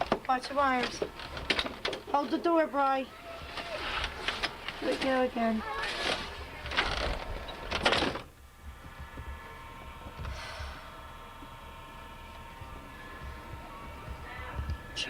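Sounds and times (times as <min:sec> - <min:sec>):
faint steady hum: 0:00.0 - 0:15.0
door scraping and rattling: 0:03.4 - 0:08.3.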